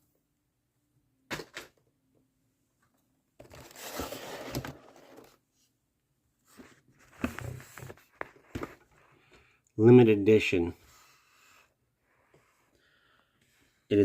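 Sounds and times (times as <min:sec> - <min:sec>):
small handling noises: 0:01.4 - 0:05.8, 0:06.4 - 0:09.8
packaging rustling and tearing: 0:03.4 - 0:05.4.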